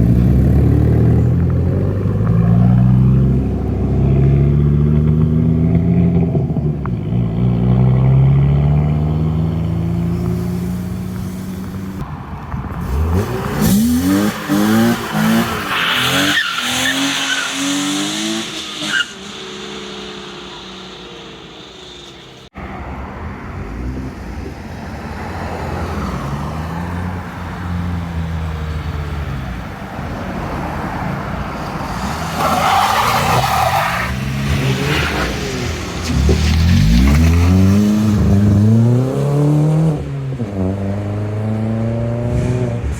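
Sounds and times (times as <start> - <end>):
car engines revving: 0.0 - 42.9
tyre screech: 12.8 - 22.5, 31.8 - 37.3.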